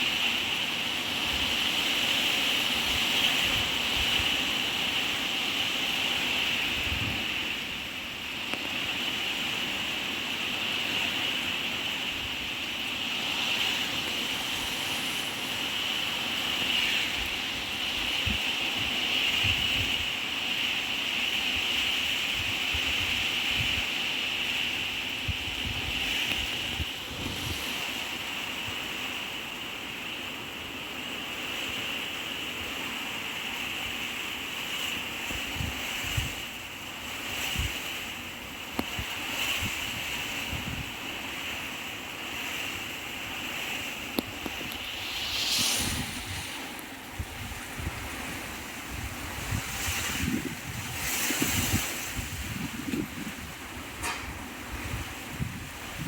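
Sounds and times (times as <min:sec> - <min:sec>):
strong wind blowing: 0:06.3 - 0:07.8, 0:13.0 - 0:20.2, 0:21.7 - 0:29.3, 0:38.8 - 0:41.0, 0:43.3 - 0:56.0
wind buffeting microphone: 0:13.6 - 0:20.2, 0:24.8 - 0:29.0, 0:38.8 - 0:41.0, 0:44.0 - 0:56.0.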